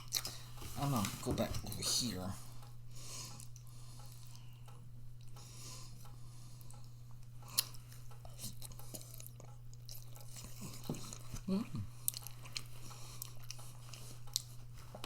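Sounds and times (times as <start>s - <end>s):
person chewing food: 0.0s - 0.7s, 2.6s - 15.0s.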